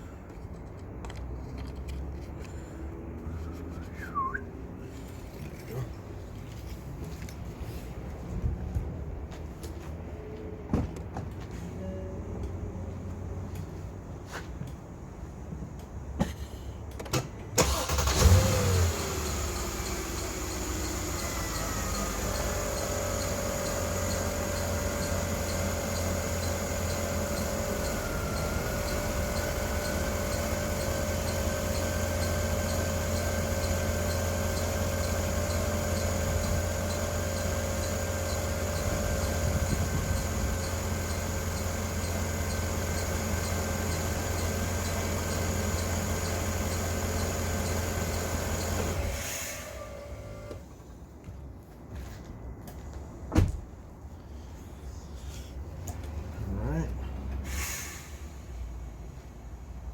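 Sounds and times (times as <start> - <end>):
car engine starting and idling: 16.9 - 50.8.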